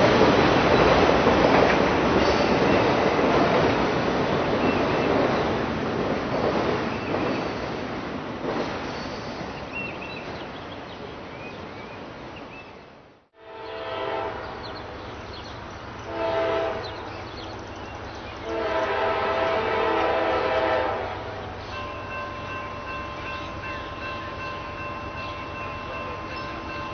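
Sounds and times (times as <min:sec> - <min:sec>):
locomotive air horn blasts: 0:13.4 - 0:14.6, 0:16.1 - 0:17.1, 0:18.4 - 0:21.4.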